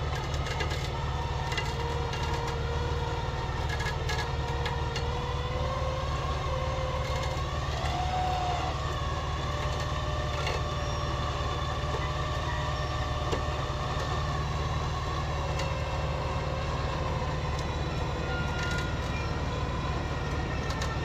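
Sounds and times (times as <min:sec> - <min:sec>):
off-road vehicle engine drone: 0:00.0 - 0:21.0.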